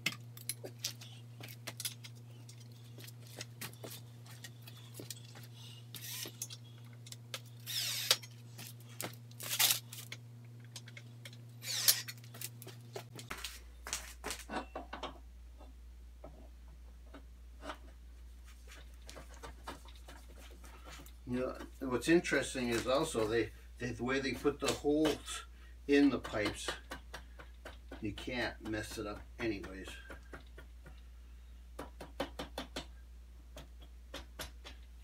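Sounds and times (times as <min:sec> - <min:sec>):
steady low hum: 0:00.0 - 0:31.8
metal parts clinking and rattling: 0:01.6 - 0:02.8, 0:06.0 - 0:08.4, 0:09.3 - 0:12.6.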